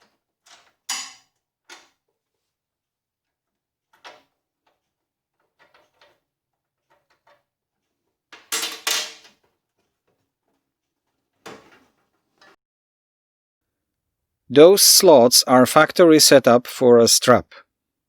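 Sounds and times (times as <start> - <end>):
metal parts knocking and rattling: 3.9 - 12.5.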